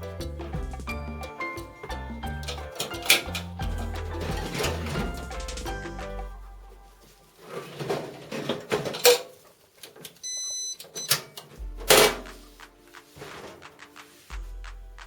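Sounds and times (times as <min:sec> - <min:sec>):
objects knocking and clattering: 0:00.5 - 0:06.3, 0:07.4 - 0:10.2
short electronic beep: 0:10.2 - 0:11.2.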